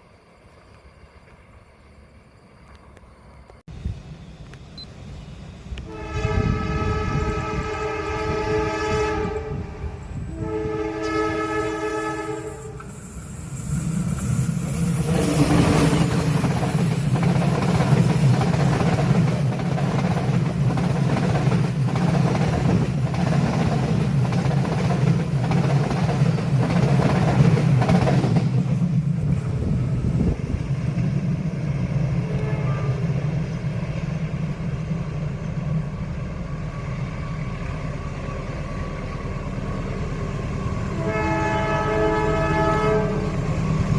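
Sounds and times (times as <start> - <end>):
train horn blast: 5.8 - 12.9, 32.2 - 33.3, 40.9 - 43.5
locomotive engine drone: 28.6 - 43.9.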